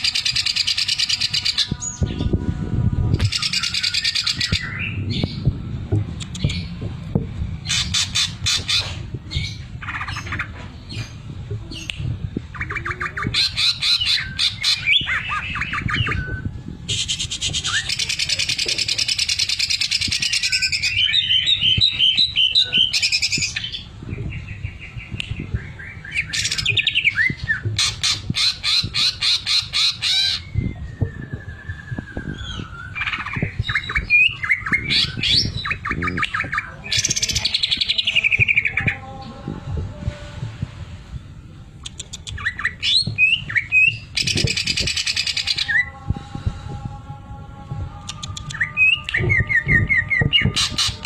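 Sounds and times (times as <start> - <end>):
bird singing trills and whistles: 3.2 - 5.5, 7.6 - 39.0, 41.8 - 46.0.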